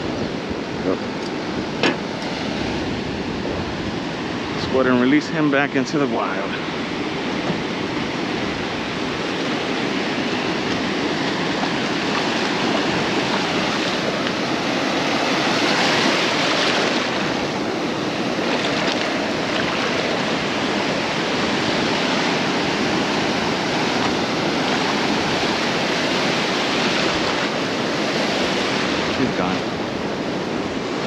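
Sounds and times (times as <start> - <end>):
surf washing on beach: 0.0 - 31.0.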